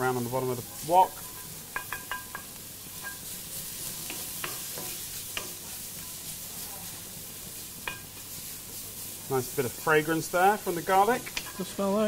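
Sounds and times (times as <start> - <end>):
vegetables sizzling in oil: 0.0 - 12.0
wooden spoon ticking against wok: 1.3 - 3.3.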